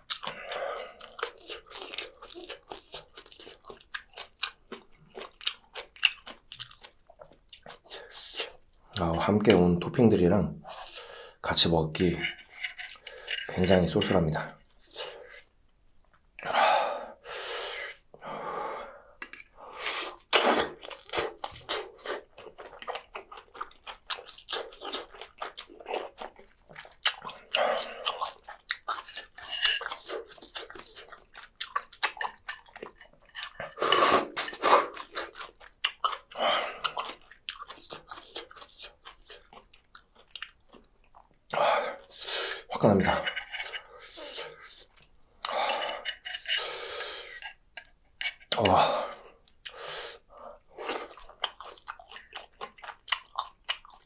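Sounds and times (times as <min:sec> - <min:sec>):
wet chewing and mouth clicks: 0:00.0 - 0:10.0, 0:19.2 - 0:54.0
slurping: 0:19.2 - 0:39.6, 0:40.4 - 0:47.6, 0:48.2 - 0:54.0.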